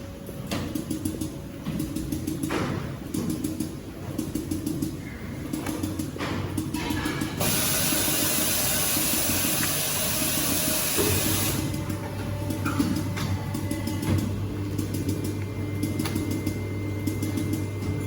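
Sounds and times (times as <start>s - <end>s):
loud steady air hiss: 7.3s - 11.7s
low machine rumble: 11.5s - 18.0s.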